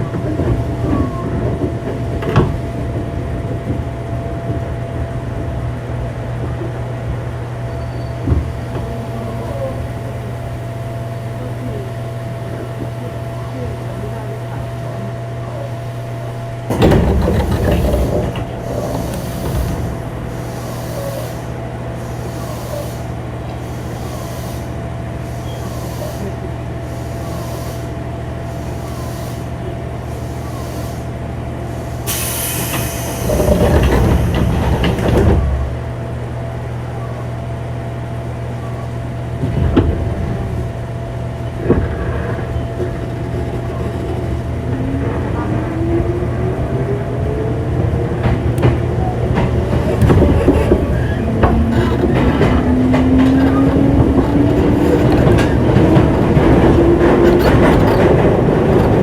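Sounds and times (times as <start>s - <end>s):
traction motors whining: 7.5s - 36.7s, 38.2s - 59.0s
heavy rumbling: 8.4s - 36.0s, 39.3s - 59.0s
air hissing: 16.7s - 35.2s.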